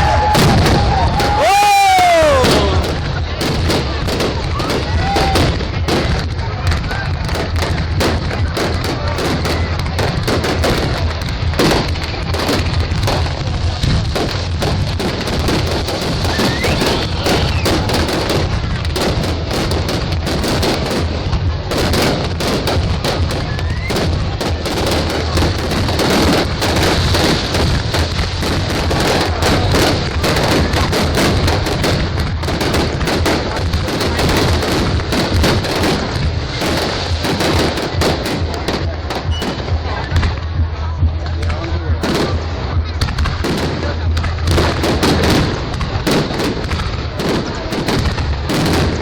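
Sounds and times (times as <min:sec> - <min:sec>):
fireworks bangs and crackles: 0:00.0 - 0:49.0.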